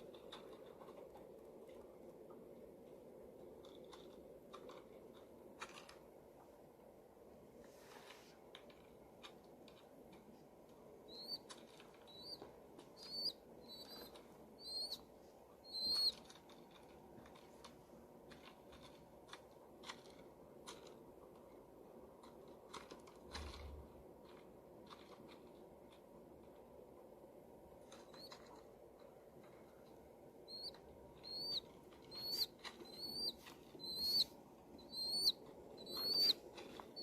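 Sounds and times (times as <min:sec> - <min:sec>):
young pigeon peeping: 0:10.8 - 0:17.5, 0:27.7 - 0:37.0.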